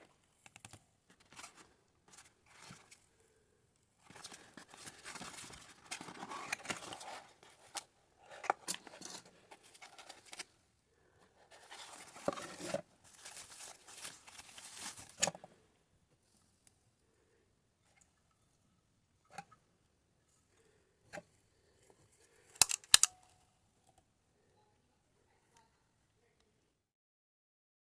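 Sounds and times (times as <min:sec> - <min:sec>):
packaging rustling and tearing: 0:11.7 - 0:15.3
sharp clicks: 0:22.6 - 0:23.2.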